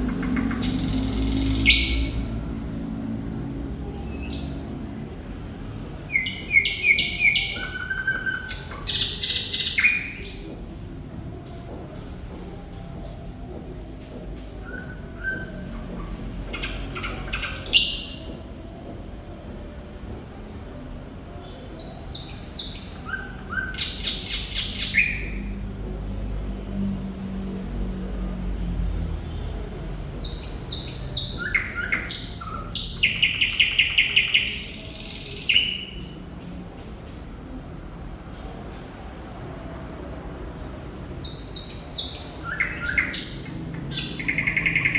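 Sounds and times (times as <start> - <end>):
nightingale singing: 0.0 - 2.5, 5.3 - 10.5, 21.4 - 25.5, 29.6 - 37.2, 40.9 - 44.9.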